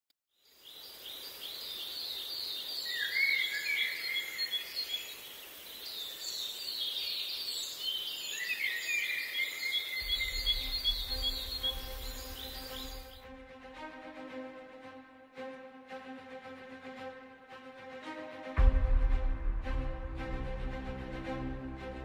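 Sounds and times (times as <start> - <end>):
birds singing high chirps: 0.3 - 13.2
low rumble: 10.0 - 13.6.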